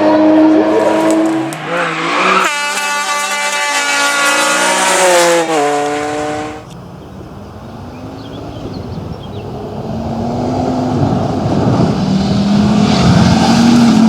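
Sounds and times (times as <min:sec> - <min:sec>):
rally car engine at high revs: 0:00.0 - 0:06.6, 0:09.7 - 0:14.0.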